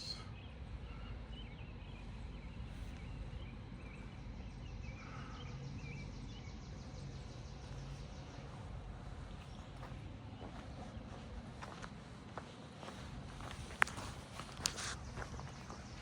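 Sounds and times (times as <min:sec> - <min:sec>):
faint bird chirps: 0:00.0 - 0:08.1.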